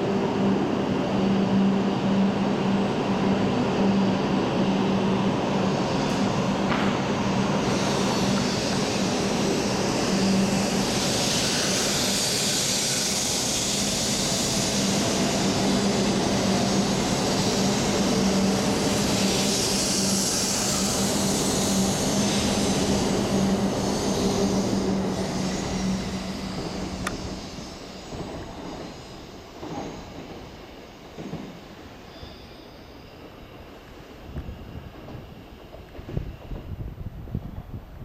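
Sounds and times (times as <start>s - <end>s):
train cars rushing past: 0.0s - 37.9s.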